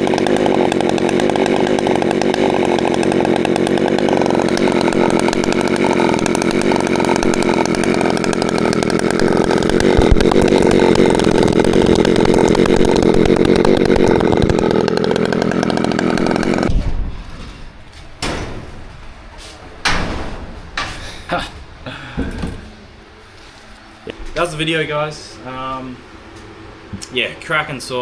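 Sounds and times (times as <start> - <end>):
chainsaw running: 0.0 - 16.7
knocks: 19.8 - 22.8.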